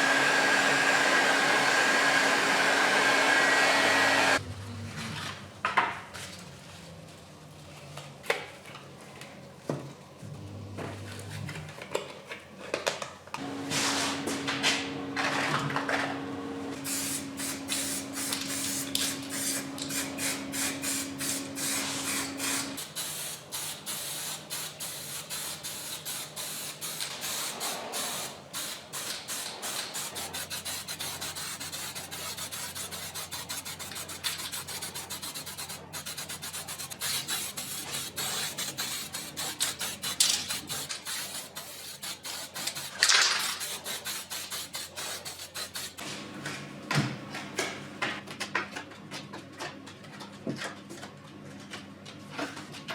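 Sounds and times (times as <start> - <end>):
aerosol spray hissing: 16.8 - 30.3
spray can rattling: 28.6 - 46.0.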